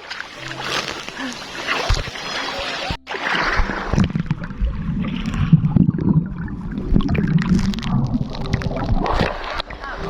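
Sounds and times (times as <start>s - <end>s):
small splashes: 0.0s - 6.2s
river water churning: 0.0s - 10.0s.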